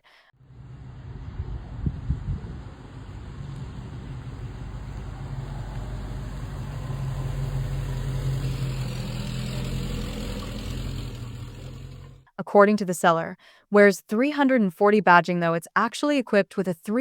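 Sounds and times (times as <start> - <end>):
car engine idling: 0.4 - 12.3.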